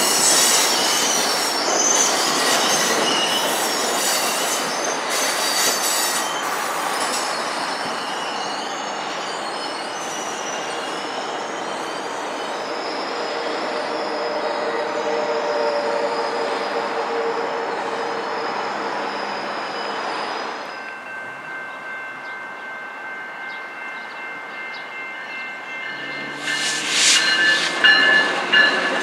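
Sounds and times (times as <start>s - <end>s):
squealing train wheels: 0.0s - 22.6s, 23.2s - 29.0s
train cars rumbling past: 0.0s - 29.0s
crossing warning bell ringing: 17.9s - 29.0s.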